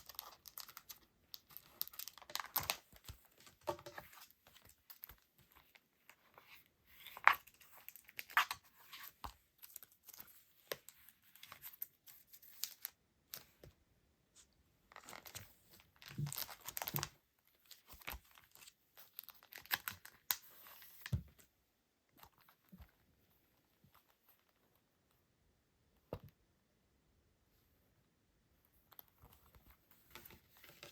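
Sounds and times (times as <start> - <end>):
packaging crinkling and tearing: 0.0 - 2.8, 16.0 - 17.1, 18.0 - 20.4.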